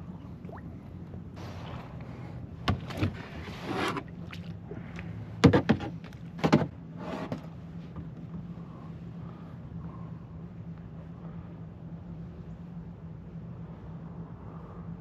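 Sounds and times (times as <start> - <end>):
steady low hum: 0.0 - 15.0
paddle swishing water: 1.4 - 4.6.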